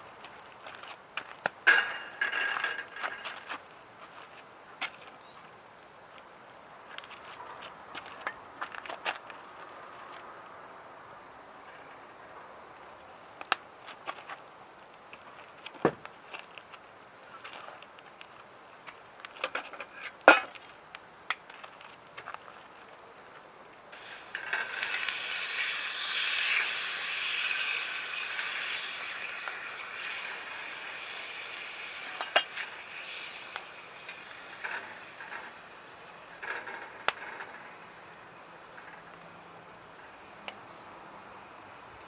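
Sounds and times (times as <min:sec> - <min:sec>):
food sizzling in hot oil: 0:23.9 - 0:36.4.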